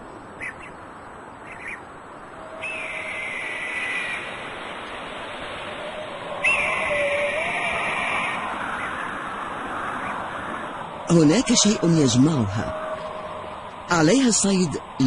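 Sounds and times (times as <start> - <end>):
bird of prey whistled call: 2.4 - 4.2, 5.8 - 9.0.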